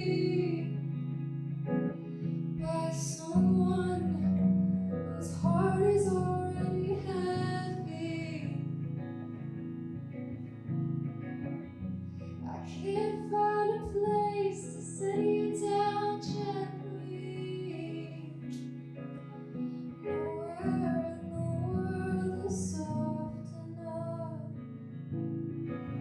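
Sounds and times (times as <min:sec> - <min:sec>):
person singing: 0:00.0 - 0:00.8, 0:02.6 - 0:08.6, 0:12.4 - 0:18.6, 0:20.0 - 0:24.6
guitar accompaniment: 0:00.0 - 0:26.0.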